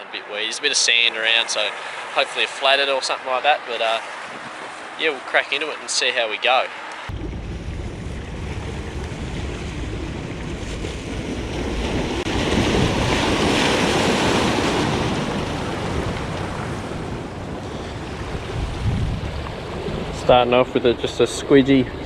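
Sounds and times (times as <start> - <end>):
wind buffeting microphone: 7.1 - 22.0
waves washing onto rocky shore: 8.1 - 21.8.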